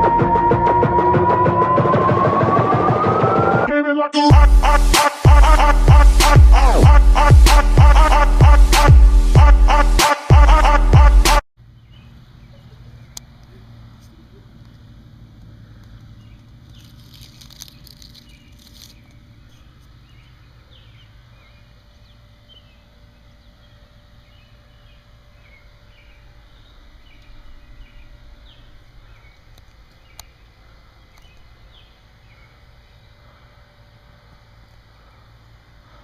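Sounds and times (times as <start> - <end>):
bird chirps: 11.7 - 14.5, 15.8 - 33.3
rustle: 11.8 - 22.9
click: 29.5 - 30.3.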